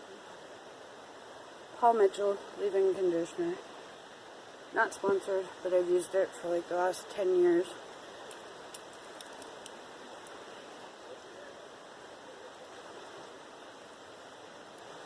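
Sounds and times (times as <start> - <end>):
river water rushing: 0.0 - 15.0
faint clicks: 8.2 - 10.4.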